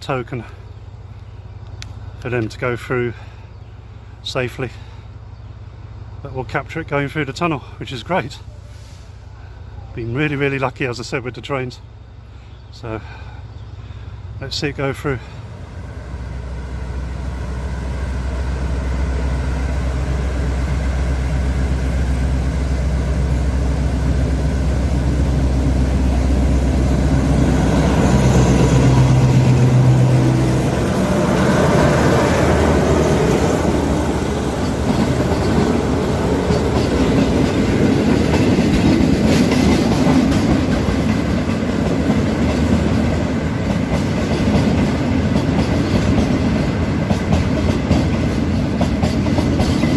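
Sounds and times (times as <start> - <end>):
train engine drone: 0.0 - 49.9
train cars rolling clatter: 15.8 - 49.9.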